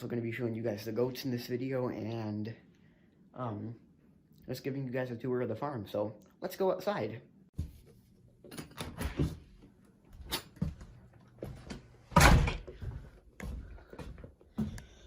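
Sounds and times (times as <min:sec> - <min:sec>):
door thumping shut: 0:12.2 - 0:12.7.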